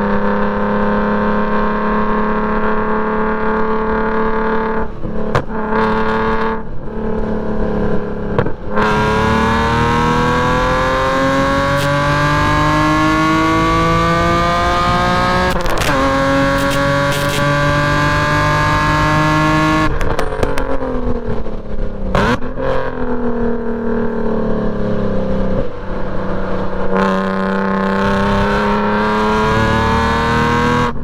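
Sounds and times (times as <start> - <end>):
car engine accelerating: 0.0 - 31.0.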